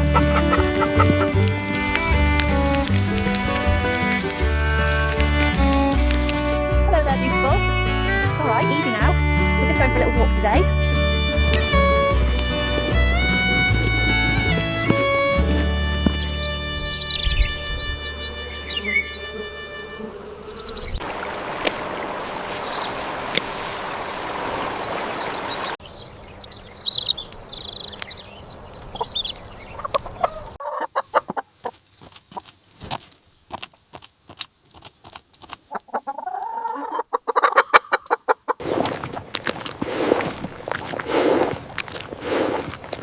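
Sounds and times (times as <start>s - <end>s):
chickens clucking: 0.0s - 22.0s, 29.0s - 31.8s, 35.7s - 38.5s
outdoor noise: 0.0s - 43.0s
high bird chirps: 13.1s - 21.5s, 24.7s - 30.4s.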